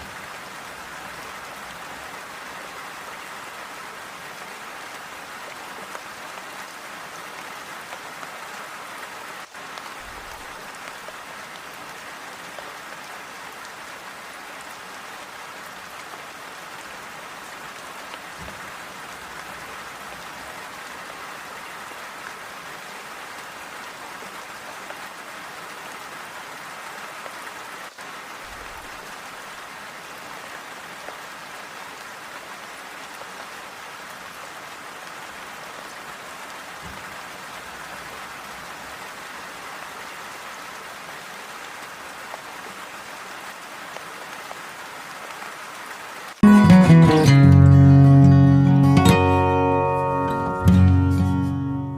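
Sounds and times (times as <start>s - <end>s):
steady rainfall: 0.0s - 51.9s.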